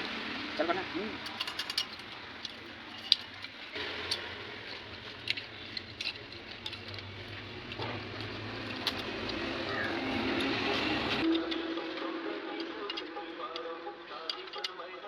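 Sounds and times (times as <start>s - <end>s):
metal tools clicking and tapping: 1.2s - 11.3s.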